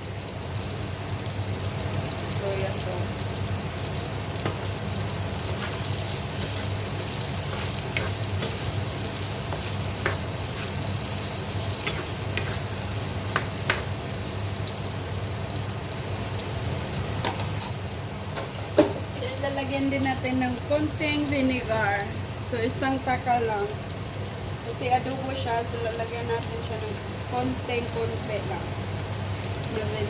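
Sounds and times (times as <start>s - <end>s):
vegetables sizzling in a frying pan: 0.0s - 30.0s
utensil clicking against pan: 9.5s - 10.8s.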